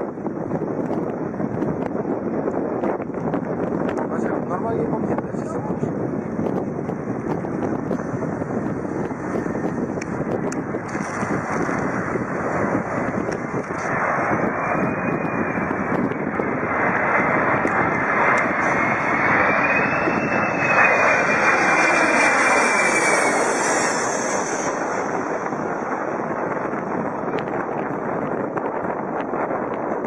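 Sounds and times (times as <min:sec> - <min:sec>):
airplane engines running loudly: 0:00.0 - 0:30.0
high engine whine: 0:06.9 - 0:28.6.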